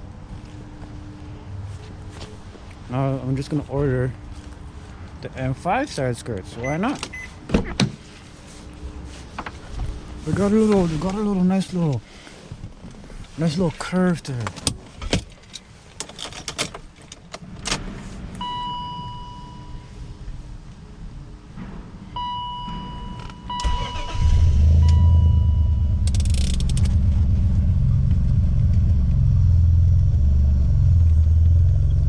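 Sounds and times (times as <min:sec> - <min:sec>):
person speaking: 0:05.2 - 0:07.2, 0:10.2 - 0:12.1, 0:13.4 - 0:14.6
car warning chime beeps: 0:06.6 - 0:07.4, 0:18.4 - 0:20.0, 0:22.2 - 0:26.0.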